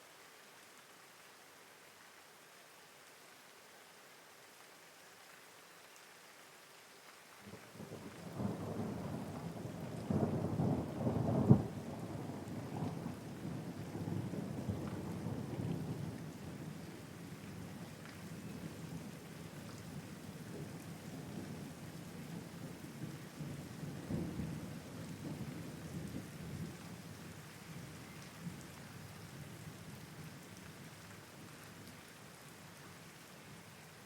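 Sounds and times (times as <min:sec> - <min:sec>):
rain hissing: 0:07.2 - 0:34.0
low rumble of thunder: 0:07.5 - 0:31.6.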